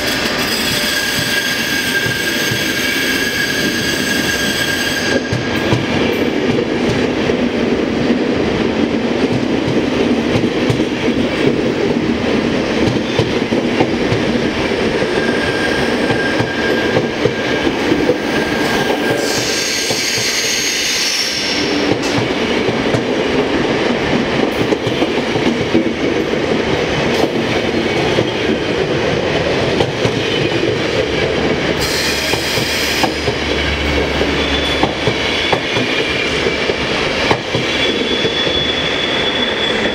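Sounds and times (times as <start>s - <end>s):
train wheel rumble: 0.0s - 39.9s
wheel squeal: 0.1s - 5.3s, 15.0s - 17.6s, 34.3s - 35.7s, 37.6s - 39.9s.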